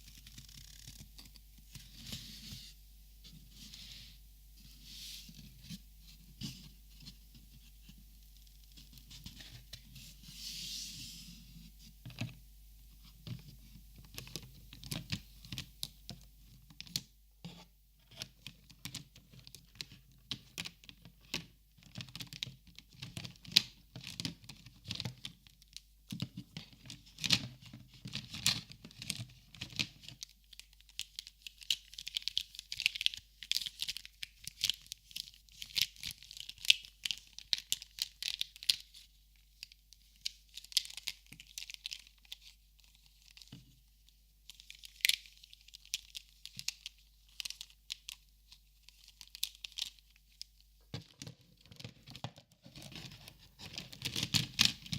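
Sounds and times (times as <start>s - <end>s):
packaging crinkling and clicks: 29.2s - 38.9s, 44.5s - 50.4s.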